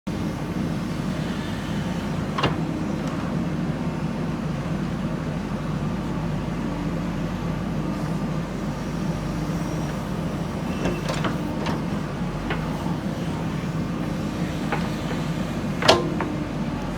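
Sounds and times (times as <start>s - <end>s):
diesel engine running: 0.1s - 16.9s
metallic clanks: 10.7s - 16.7s.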